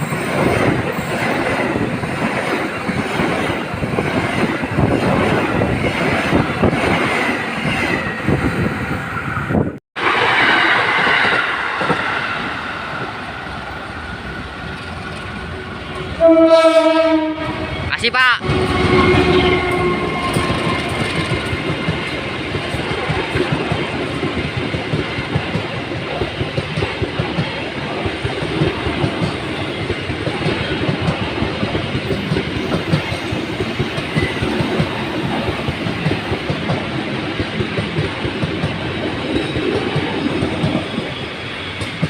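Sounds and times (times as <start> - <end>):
train horn: 15.5 - 21.0
train wheels clattering over rails: 18.4 - 42.0.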